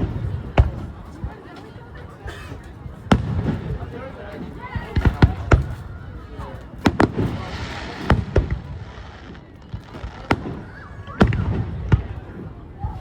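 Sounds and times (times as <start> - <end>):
faint crowd voices: 0.0 - 13.0
fireworks bangs: 3.0 - 6.0, 6.7 - 12.6.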